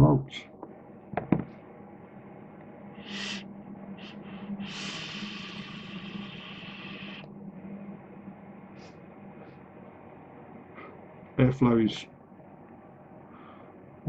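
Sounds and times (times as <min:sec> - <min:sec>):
air hissing through atomiser: 0:03.0 - 0:07.3
person breathing: 0:03.0 - 0:07.3, 0:10.7 - 0:11.0, 0:13.2 - 0:13.9.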